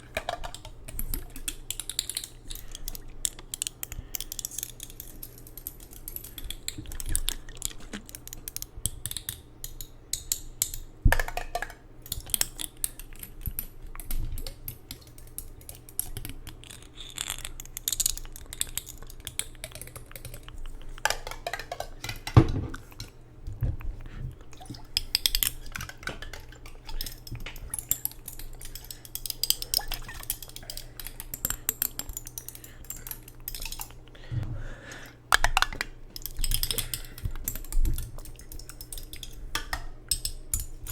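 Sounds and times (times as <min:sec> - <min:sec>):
tapping on hard objects: 0:21.0 - 0:23.9.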